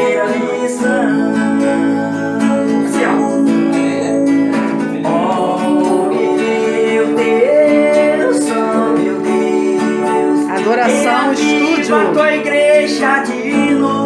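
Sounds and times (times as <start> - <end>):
strummed acoustic guitar: 0.0 - 14.0
sustained melodic line: 1.7 - 12.9.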